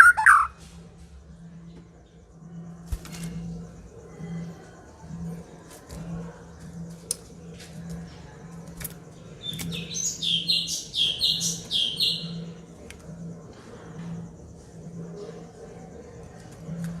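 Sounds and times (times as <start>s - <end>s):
bird singing high notes: 0.0s - 0.6s.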